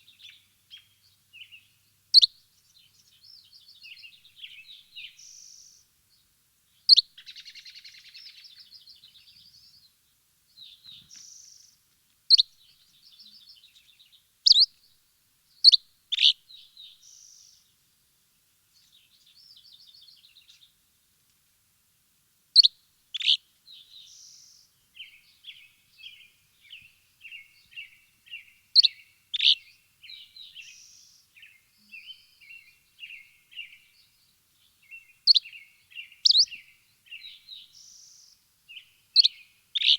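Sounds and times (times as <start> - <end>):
songbirds chirping: 0.0 - 21.7, 22.6 - 39.9
birds twittering trills: 23.2 - 39.9.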